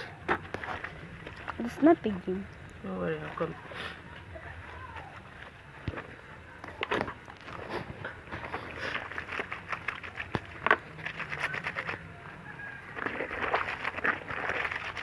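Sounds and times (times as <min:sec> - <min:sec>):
water splashing: 0:00.0 - 0:02.3, 0:06.8 - 0:15.0
clothes scrubbed in soapy water: 0:07.4 - 0:15.0.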